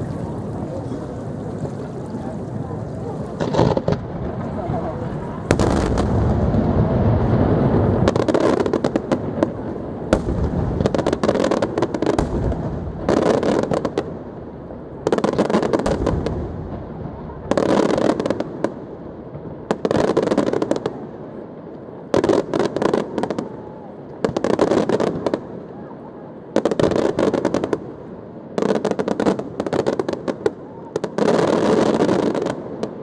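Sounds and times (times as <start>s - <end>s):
fireworks crackling: 0.0s - 33.0s
firework shells booming: 0.2s - 21.0s.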